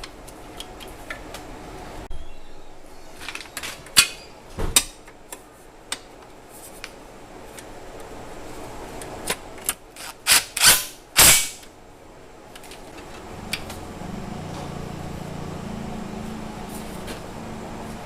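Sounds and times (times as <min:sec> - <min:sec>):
low machine hum: 0:00.0 - 0:09.6, 0:11.7 - 0:18.0
sharp tool clicks: 0:10.0 - 0:11.6.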